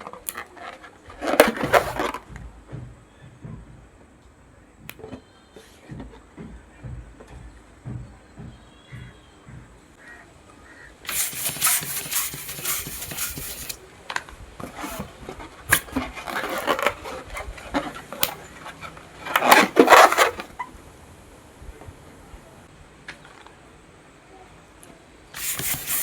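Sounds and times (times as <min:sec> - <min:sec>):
rubber balloons rubbing: 0:01.3 - 0:02.1, 0:11.1 - 0:13.8, 0:14.7 - 0:15.1, 0:15.7 - 0:17.5, 0:19.4 - 0:20.5, 0:25.4 - 0:26.0
balloons popping: 0:11.1 - 0:13.8, 0:14.8 - 0:15.1, 0:19.4 - 0:20.4.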